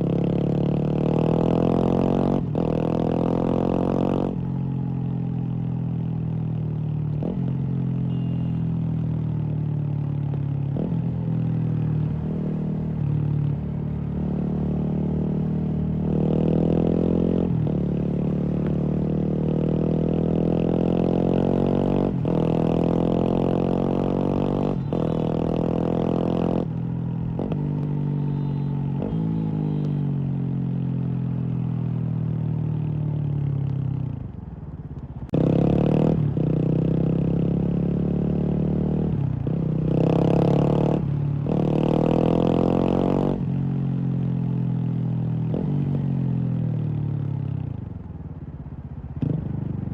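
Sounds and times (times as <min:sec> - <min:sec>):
motorcycle engine revving through gears: 0:00.0 - 0:04.5, 0:14.2 - 0:30.0, 0:35.3 - 0:47.5, 0:49.2 - 0:49.9.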